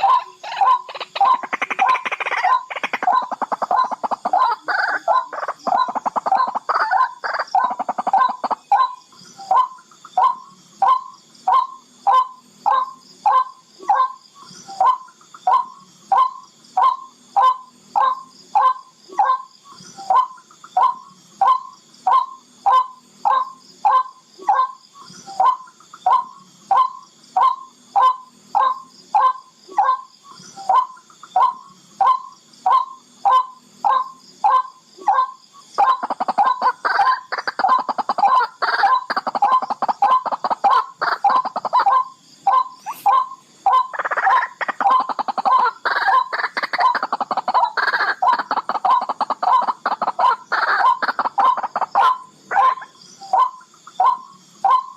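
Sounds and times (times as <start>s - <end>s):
rail bird calling: 0.0s - 54.9s.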